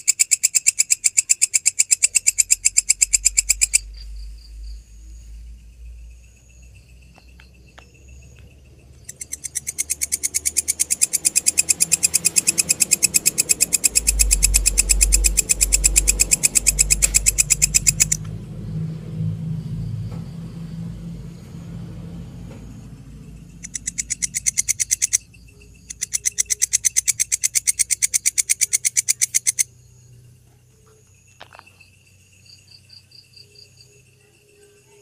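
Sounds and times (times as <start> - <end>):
faint insect chirps: 0.0 - 35.0
grasshopper trilling: 0.0 - 35.0
low rumble: 2.4 - 9.4, 11.6 - 26.0.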